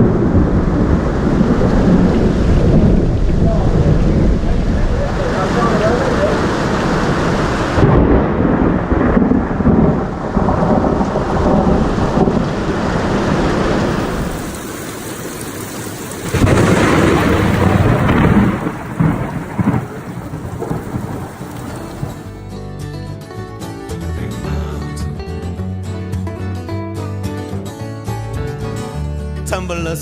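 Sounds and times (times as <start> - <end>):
rain: 0.0 - 22.4
rolling thunder: 0.0 - 22.4.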